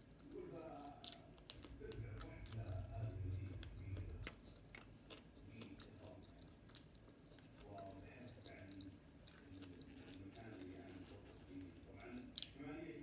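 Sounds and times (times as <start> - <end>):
close chewing and mouth smacks: 0.0 - 13.0
low muffled sound: 1.4 - 4.5.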